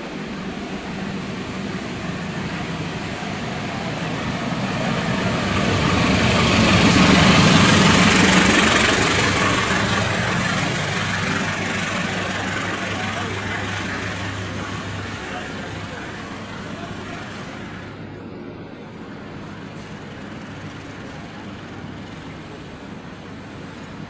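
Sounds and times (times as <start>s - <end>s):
wheels on rails: 0.0s - 18.3s, 19.0s - 24.0s
train engine hum: 0.0s - 24.0s.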